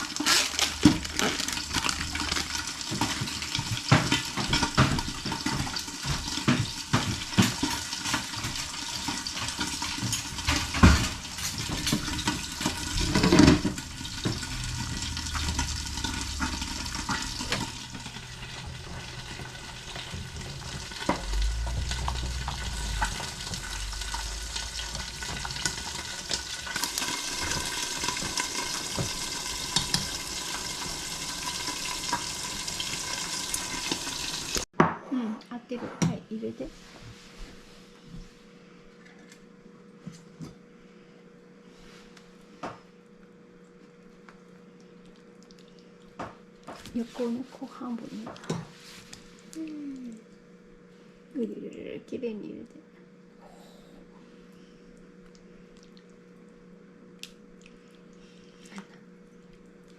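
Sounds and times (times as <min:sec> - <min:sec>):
food sizzling in a pan: 0:00.0 - 0:34.7.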